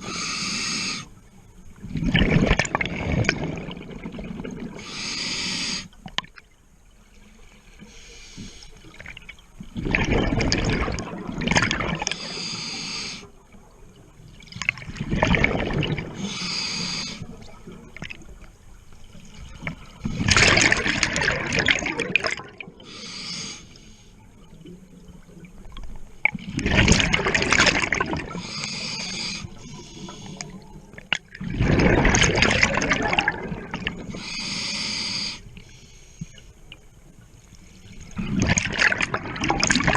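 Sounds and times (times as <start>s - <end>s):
water splashing and sloshing: 1.1s - 34.8s, 35.4s - 39.9s.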